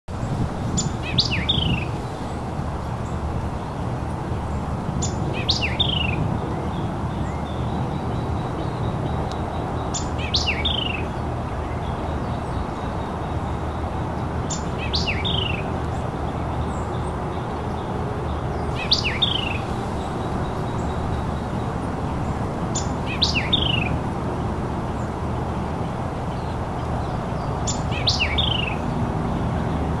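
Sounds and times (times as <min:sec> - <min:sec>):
bird singing: 0:00.7 - 0:02.4, 0:04.4 - 0:30.0
low rushing noise: 0:15.7 - 0:30.0.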